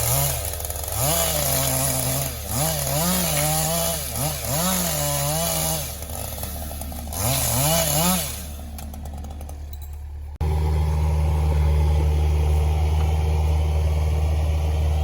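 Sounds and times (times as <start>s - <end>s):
chainsaw revving while cutting: 0.0s - 9.5s.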